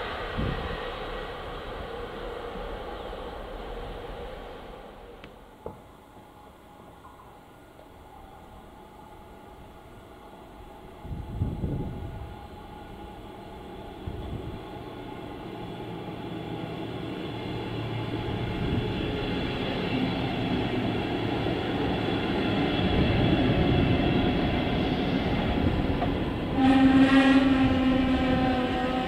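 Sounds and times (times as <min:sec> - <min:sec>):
train passing at speed: 0:00.0 - 0:29.0.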